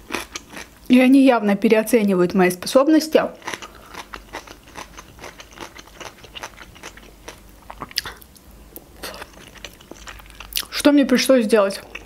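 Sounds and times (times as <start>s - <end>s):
wet chewing clicks and smacks: 3.4s - 8.4s, 9.2s - 10.7s.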